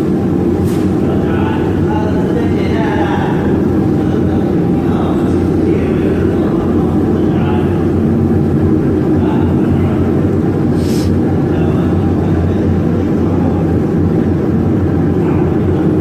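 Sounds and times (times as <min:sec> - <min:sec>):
machinery hum and rumble: 0:00.0 - 0:16.0.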